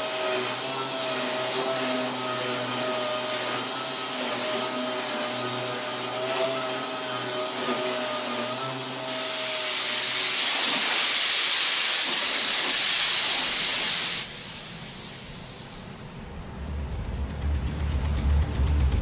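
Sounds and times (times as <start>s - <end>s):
air spray hissing from nozzle: 7.2s - 16.1s.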